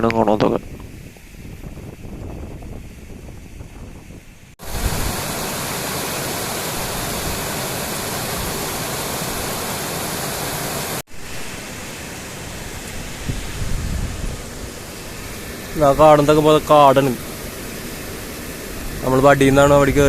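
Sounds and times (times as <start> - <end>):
waterfall rushing over rock: 4.6 - 20.0.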